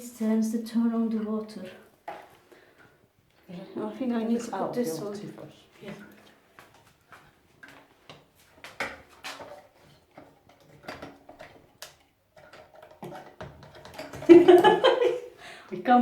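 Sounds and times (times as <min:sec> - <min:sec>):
plastic parts clicking and knocking: 0:07.6 - 0:14.7.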